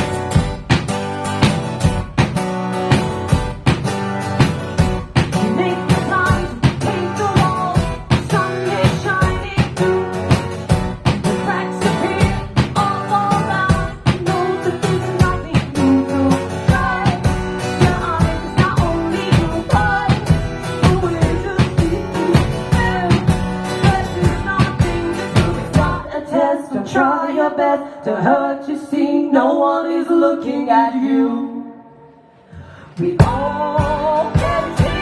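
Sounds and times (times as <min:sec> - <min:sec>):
drum beat: 0:00.0 - 0:26.0, 0:33.2 - 0:35.0
strummed guitar: 0:00.0 - 0:26.2, 0:32.6 - 0:35.0
person singing: 0:05.3 - 0:10.6, 0:11.2 - 0:31.9, 0:32.7 - 0:35.0.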